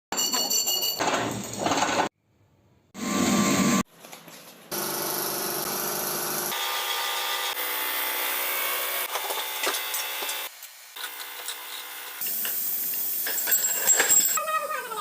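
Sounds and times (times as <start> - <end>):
power tool running: 3.0 - 3.8, 4.7 - 12.2.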